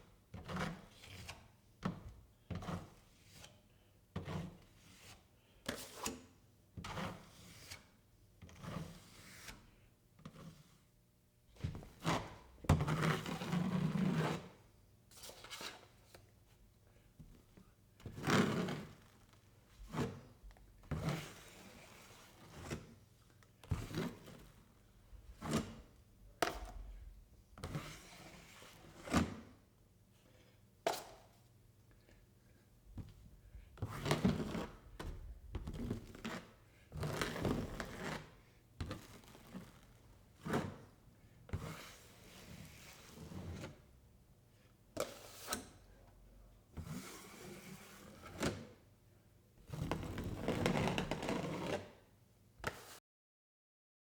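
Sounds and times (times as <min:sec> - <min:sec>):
drywall knife scraping: 0:12.0 - 0:14.6, 0:18.0 - 0:19.1, 0:33.8 - 0:39.8, 0:49.7 - 0:52.0.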